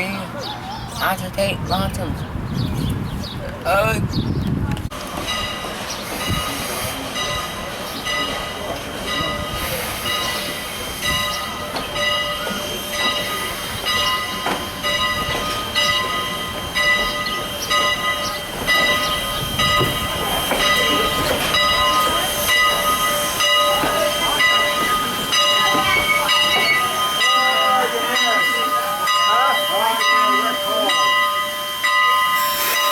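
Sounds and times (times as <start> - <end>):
steam locomotive rumbling: 0.0 - 32.9
bell ringing: 7.2 - 32.9.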